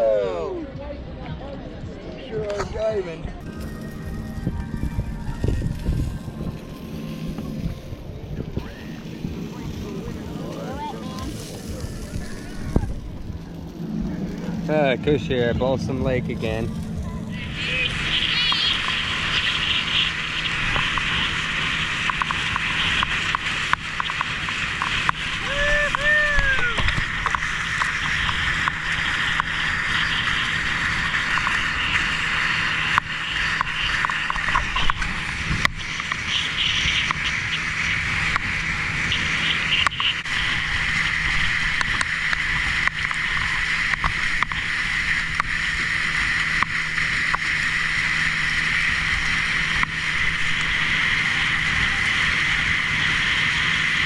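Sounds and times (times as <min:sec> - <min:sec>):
wind: 0:00.0 - 0:54.0
outboard motor running: 0:03.4 - 0:54.0
rushing water: 0:14.6 - 0:54.0.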